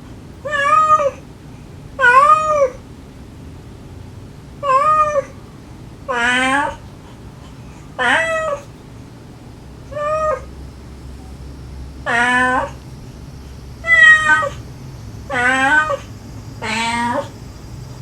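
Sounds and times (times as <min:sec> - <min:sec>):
cats meowing: 0:00.5 - 0:01.2, 0:02.0 - 0:02.8, 0:04.6 - 0:05.4, 0:06.1 - 0:06.9, 0:07.8 - 0:08.8, 0:09.8 - 0:10.6, 0:12.0 - 0:13.0, 0:13.6 - 0:17.4.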